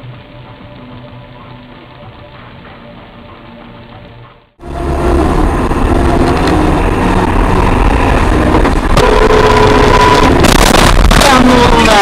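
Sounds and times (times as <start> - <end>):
car engine and road noise: 4.6 - 11.0
steady tone: 4.6 - 11.1.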